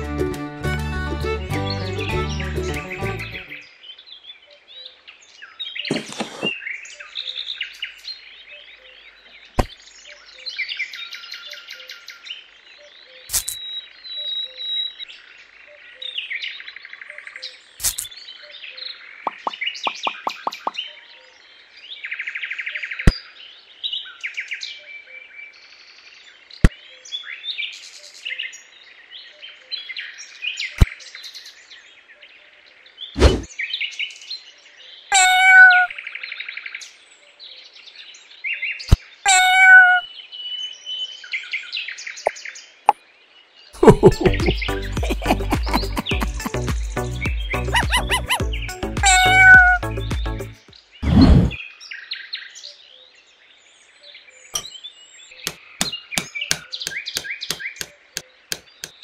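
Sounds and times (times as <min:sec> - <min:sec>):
small birds chirping and trilling: 0:01.4 - 0:59.0
sharp click: 0:13.3 - 0:13.6, 0:17.8 - 0:18.1.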